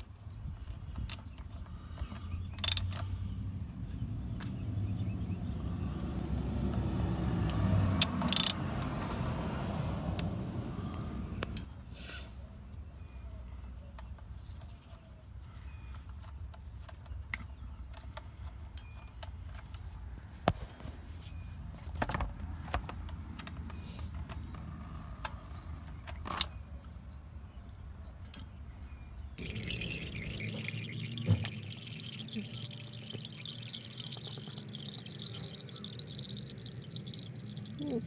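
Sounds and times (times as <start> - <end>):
metallic clicks and knocks: 2.6 - 3.0, 8.0 - 8.6.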